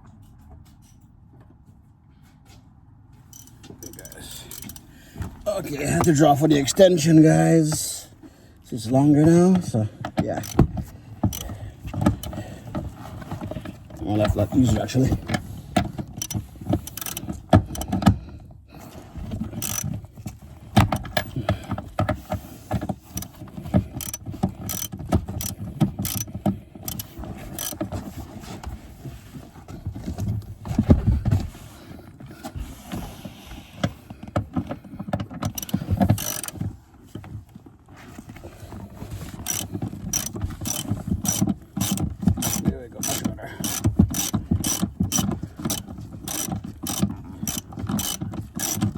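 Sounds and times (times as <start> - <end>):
socket ratchet clicking: 3.3 - 4.9, 16.2 - 18.0, 19.6 - 19.9, 24.0 - 27.8, 35.5 - 36.6, 39.4 - 48.9.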